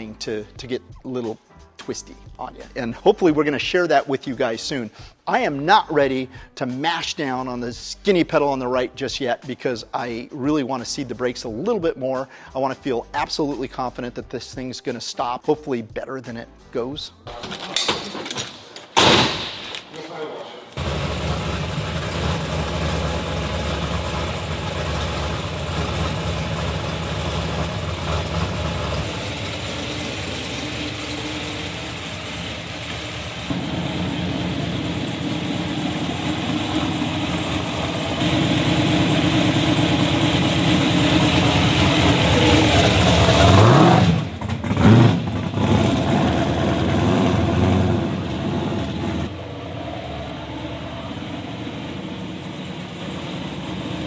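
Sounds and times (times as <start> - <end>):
car engine idling and revving: 20.8 - 54.0.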